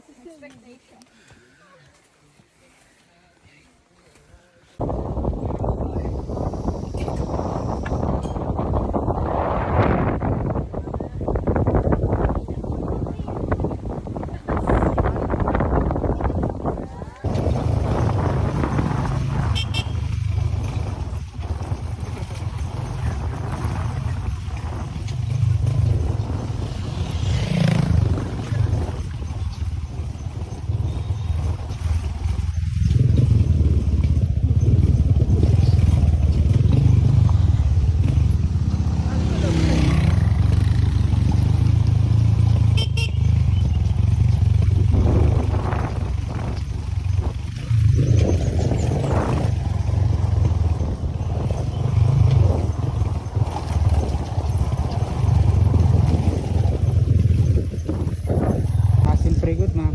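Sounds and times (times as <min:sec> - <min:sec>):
road and wind noise: 0:03.5 - 0:59.9
vehicle engine rumble: 0:04.8 - 0:59.9
horn toot: 0:19.1 - 0:20.7, 0:42.6 - 0:44.1.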